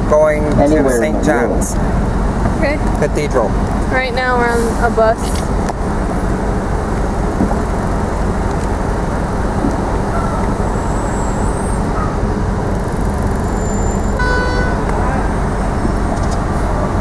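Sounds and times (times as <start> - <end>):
moving bus in traffic: 0.0 - 17.0
short horn beep: 13.7 - 15.0.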